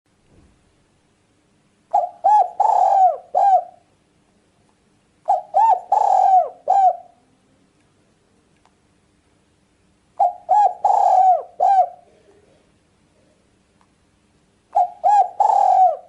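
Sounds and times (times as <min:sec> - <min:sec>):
dove cooing: 0:01.9 - 0:03.9, 0:05.3 - 0:07.3, 0:10.2 - 0:12.6, 0:14.7 - 0:16.0.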